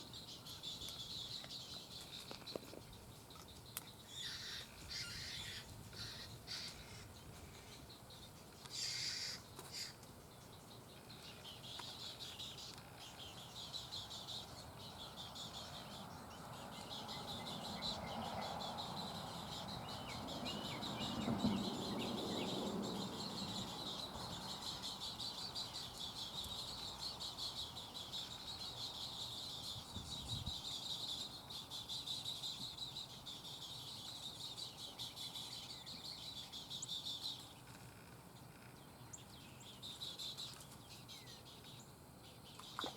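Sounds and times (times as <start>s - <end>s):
heron chicks begging chatter: 4.1s - 7.6s, 8.7s - 10.0s.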